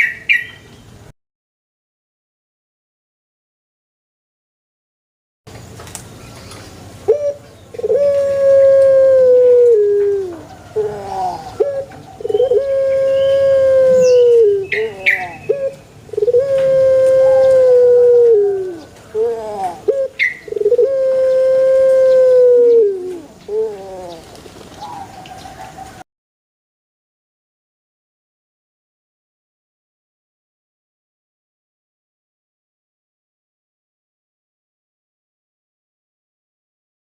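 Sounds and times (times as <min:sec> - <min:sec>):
dove cooing: 0:07.1 - 0:26.0.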